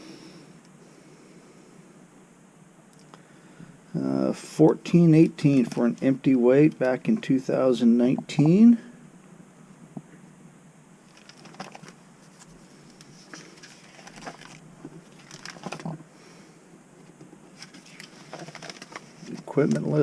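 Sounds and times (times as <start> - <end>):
pages being turned: 11.1 - 16.0, 17.5 - 20.0
paper rustling: 11.1 - 16.0, 17.1 - 20.0.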